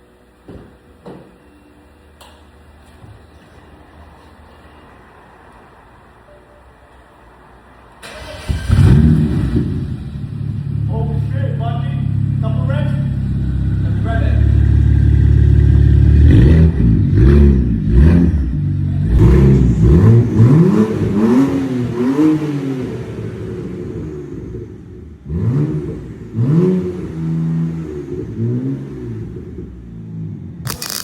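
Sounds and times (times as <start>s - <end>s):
car engine revving loudly: 8.4s - 10.7s, 13.9s - 24.1s, 25.3s - 29.5s.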